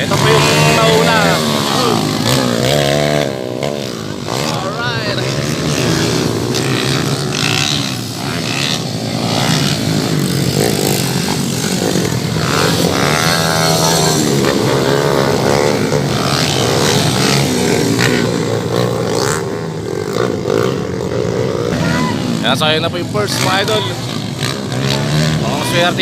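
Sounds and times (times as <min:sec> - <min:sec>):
dirt bikes revving: 0:00.0 - 0:26.0.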